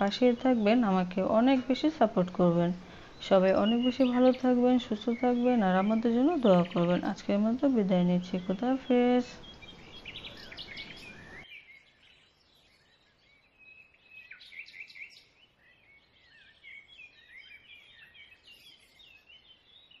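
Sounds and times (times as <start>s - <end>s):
low hiss: 0.0s - 11.4s
small birds chirping: 0.0s - 20.0s.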